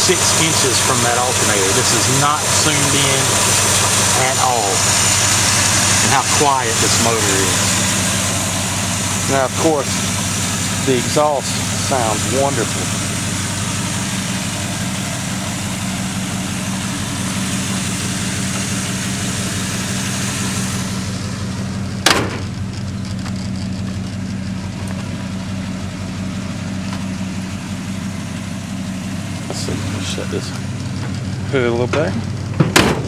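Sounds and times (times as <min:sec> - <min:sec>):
engine idling: 0:00.0 - 0:33.0
sharp knock: 0:32.6 - 0:33.0.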